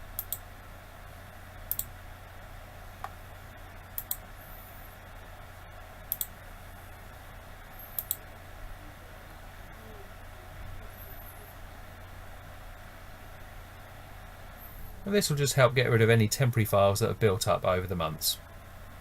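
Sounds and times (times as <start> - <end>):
low electrical hum: 0.0 - 19.0
computer mouse clicking: 0.2 - 0.4, 1.7 - 1.9, 4.0 - 4.2, 6.1 - 6.3, 7.9 - 8.2.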